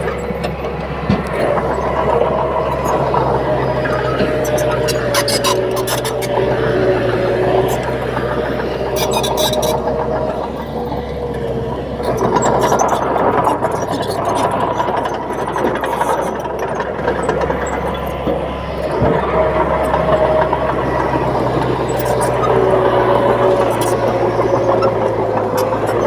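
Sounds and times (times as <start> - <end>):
bulldozer diesel engine droning: 0.0 - 26.0
thin squealing tone: 1.4 - 10.8, 19.2 - 26.0.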